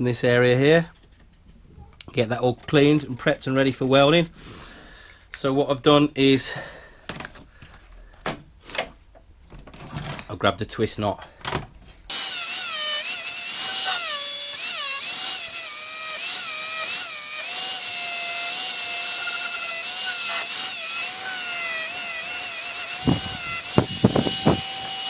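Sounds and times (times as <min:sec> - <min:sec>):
wire wheel grinding steel: 0:12.1 - 0:25.0.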